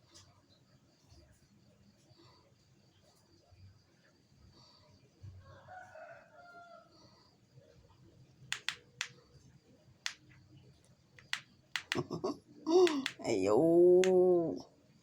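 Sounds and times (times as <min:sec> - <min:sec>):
distant rooster crowing: 0:05.4 - 0:07.0
sharp clicks: 0:08.5 - 0:09.2, 0:11.2 - 0:12.1, 0:12.8 - 0:13.3.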